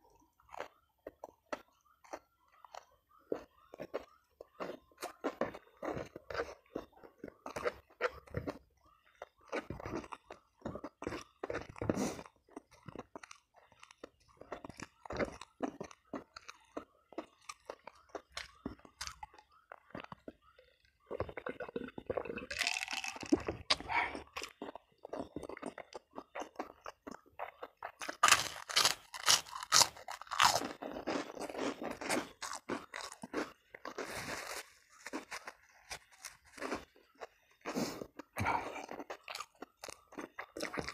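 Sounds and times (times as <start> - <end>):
chewing and crunching food: 0.0 - 40.9.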